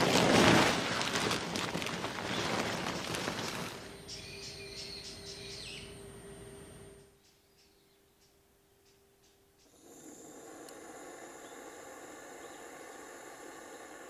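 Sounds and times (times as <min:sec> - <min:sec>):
loud rushing noise with crackles: 0:00.0 - 0:04.0
faint steady hum: 0:00.0 - 0:14.0
small birds chirping: 0:01.5 - 0:09.8, 0:11.0 - 0:14.0.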